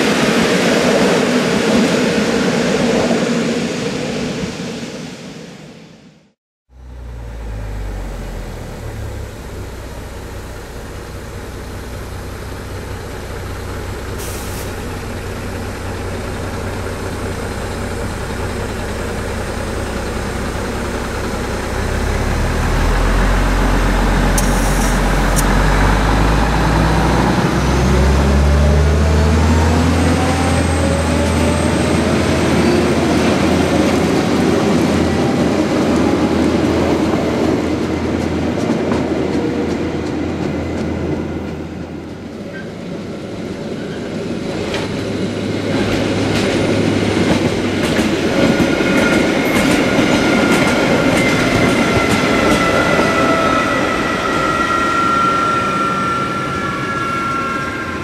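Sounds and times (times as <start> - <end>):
diesel engine under load: 6.7 - 58.0
wagons clicking over rail joints: 44.6 - 53.3
high wheel squeal: 48.6 - 58.0.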